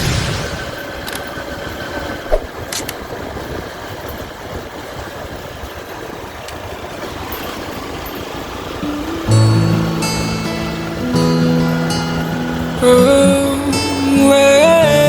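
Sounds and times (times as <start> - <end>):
motorcycle running: 0.7 - 15.0
wind noise on microphone: 2.0 - 9.4.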